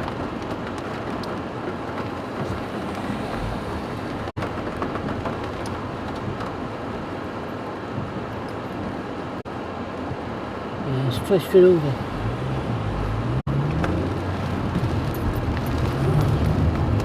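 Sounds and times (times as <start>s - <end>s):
car running noise: 0.0s - 17.0s
rain on a car: 0.0s - 17.0s.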